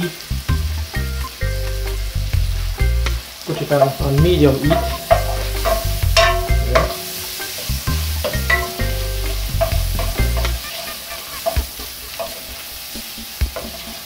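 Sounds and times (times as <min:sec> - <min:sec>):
vegetables sizzling in butter: 0:00.0 - 0:14.0
spoon knocking against pot: 0:04.6 - 0:07.5, 0:08.2 - 0:10.6, 0:11.4 - 0:12.6.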